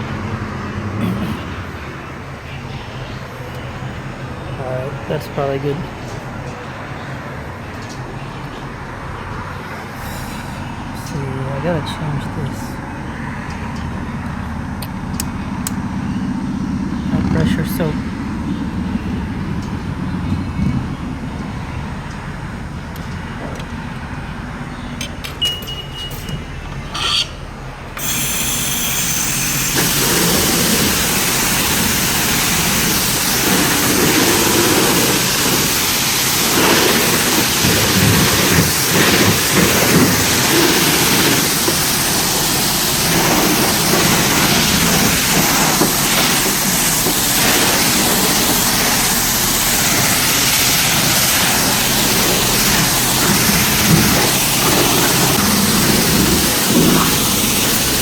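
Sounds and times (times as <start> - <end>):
short beep: 25.1 - 27.3
pressure washer spray hissing: 28.0 - 58.0.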